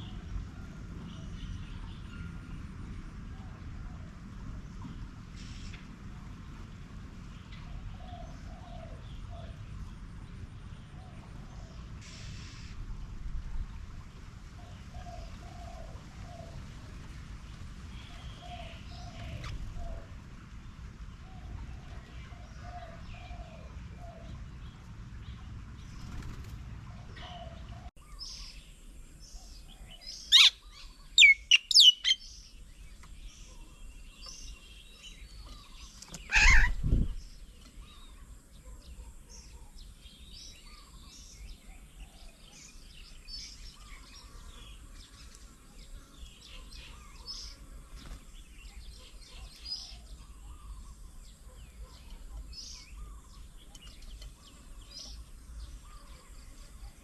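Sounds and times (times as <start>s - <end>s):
small birds chirping: 4.5s - 57.0s
loud sharp descending bird calls: 36.2s - 36.8s.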